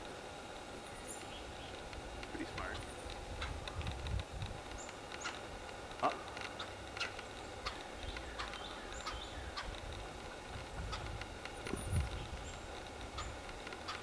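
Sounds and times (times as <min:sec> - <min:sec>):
faint clicks: 0:01.1 - 0:14.0
bird chirps and calls: 0:06.6 - 0:09.7.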